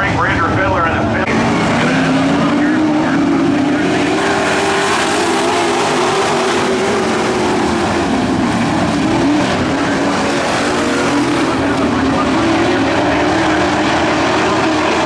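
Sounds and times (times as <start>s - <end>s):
racing truck engines at high revs: 0.0s - 15.0s.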